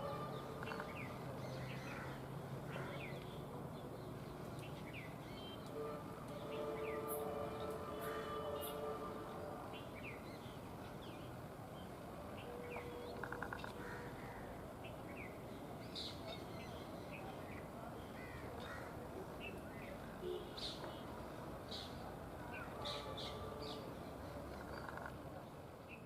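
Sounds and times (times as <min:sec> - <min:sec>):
birds chirping: 0:00.0 - 0:26.0
rapid rattling bird call: 0:13.1 - 0:14.1, 0:24.6 - 0:25.2
harsh caw-like bird calls: 0:13.1 - 0:14.6, 0:18.2 - 0:19.0.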